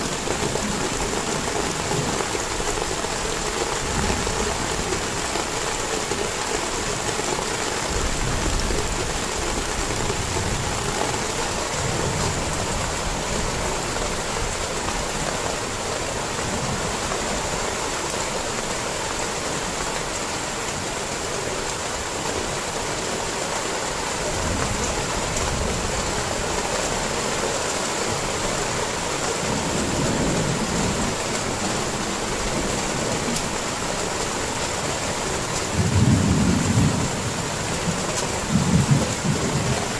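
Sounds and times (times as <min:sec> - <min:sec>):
heavy rain falling: 0:00.0 - 0:39.9
thunder rumbles: 0:35.2 - 0:39.9.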